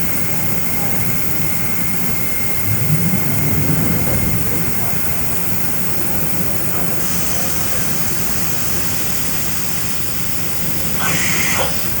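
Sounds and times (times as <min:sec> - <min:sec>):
high hiss: 0:08.9 - 0:12.0
hissing burst: 0:10.7 - 0:12.0.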